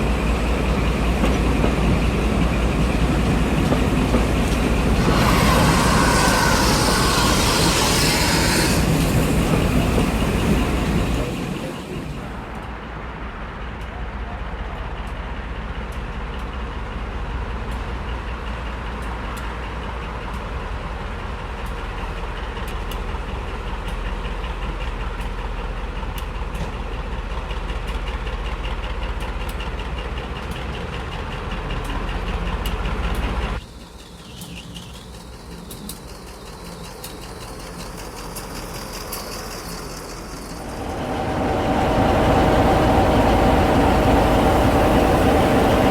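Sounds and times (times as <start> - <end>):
train rumbling: 0.0 - 45.9.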